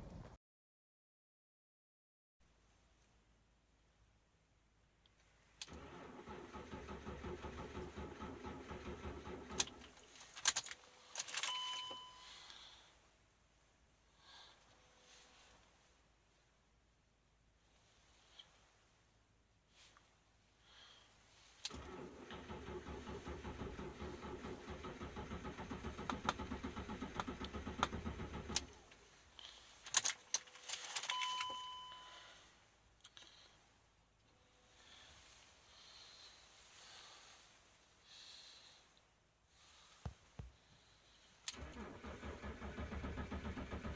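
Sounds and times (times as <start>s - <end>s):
short electronic beep: 11.5s - 12.4s, 31.1s - 32.2s
diesel engine chugging: 21.8s - 28.9s, 41.6s - 43.9s.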